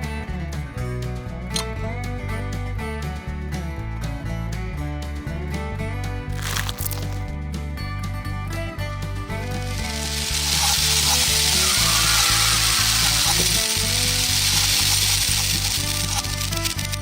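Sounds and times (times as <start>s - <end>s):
background music: 0.0s - 17.0s
loud steady hissing: 9.6s - 17.0s.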